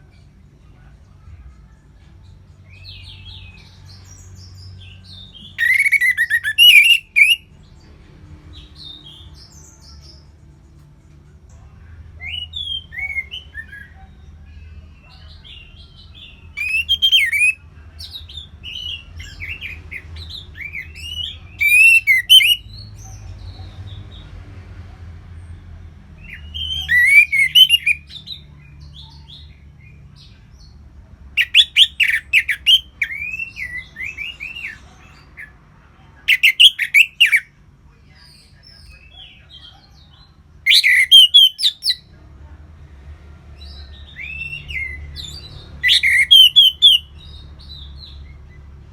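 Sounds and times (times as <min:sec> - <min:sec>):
thrush singing: 0:00.3 - 0:10.4, 0:15.3 - 0:17.7, 0:18.4 - 0:24.4, 0:26.2 - 0:28.1, 0:40.6 - 0:42.0, 0:44.2 - 0:47.2.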